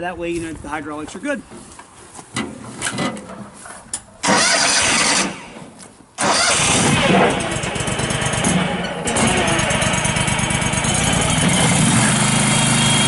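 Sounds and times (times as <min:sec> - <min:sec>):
engine cranking: 0:04.2 - 0:05.6, 0:06.2 - 0:13.0
engine running steadily: 0:06.2 - 0:13.0.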